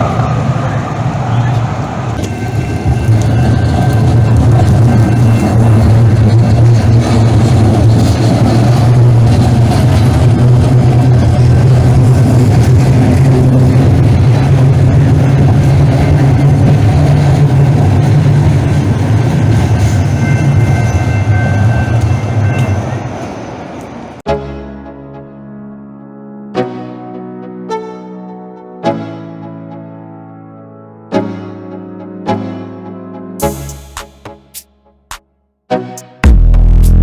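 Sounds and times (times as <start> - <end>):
transit vehicle running rumble: 0.0 - 24.2.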